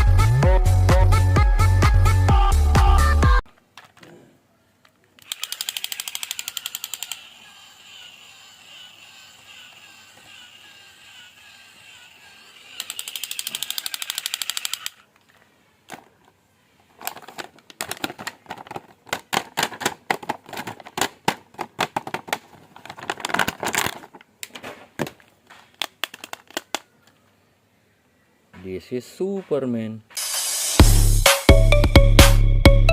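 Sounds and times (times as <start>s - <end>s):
plastic packaging clicks and crackles: 13.2s - 27.2s.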